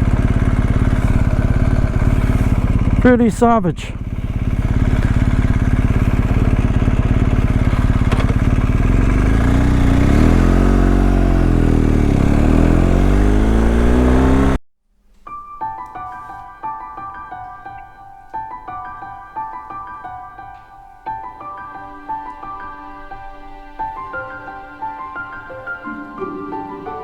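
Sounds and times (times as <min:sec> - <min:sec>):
motorcycle engine running: 0:00.0 - 0:14.6
gentle piano music: 0:15.2 - 0:27.0.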